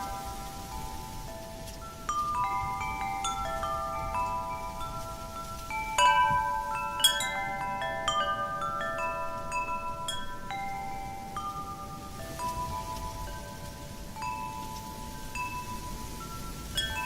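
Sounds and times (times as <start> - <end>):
faint wind rustle: 0.0 - 17.0
metal wind chimes ringing: 0.0 - 17.0.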